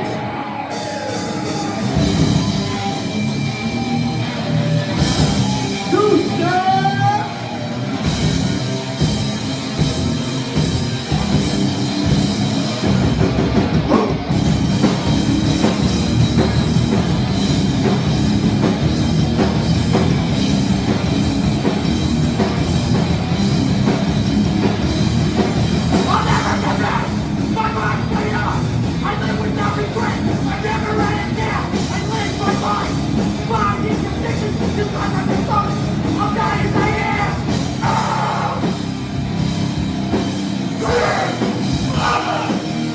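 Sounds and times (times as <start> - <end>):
punk band playing: 0.0 - 42.9
vocals over music: 5.8 - 7.5, 26.0 - 38.8, 40.7 - 42.9.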